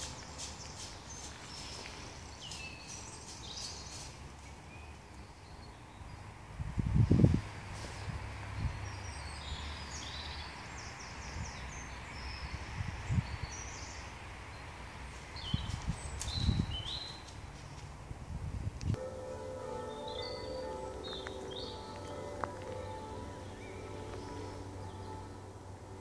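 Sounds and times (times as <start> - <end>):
small birds singing: 0.0 - 6.3, 8.6 - 17.4, 19.6 - 26.0.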